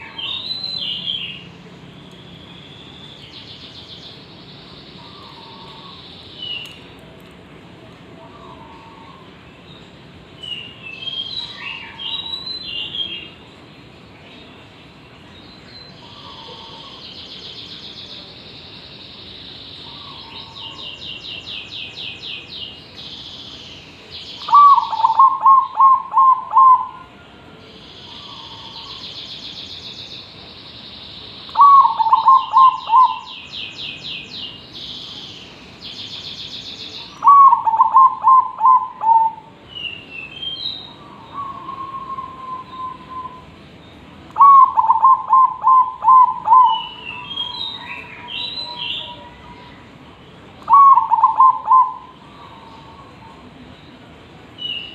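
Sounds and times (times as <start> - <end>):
dove cooing: 16.1 - 17.0, 24.4 - 27.2, 31.6 - 33.3, 37.2 - 39.5, 41.1 - 43.4, 44.4 - 47.5, 50.7 - 53.4.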